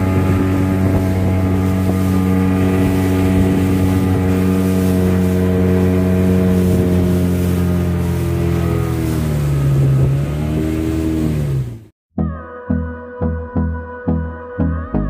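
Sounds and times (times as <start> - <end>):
wind noise on microphone: 0.0 - 11.3.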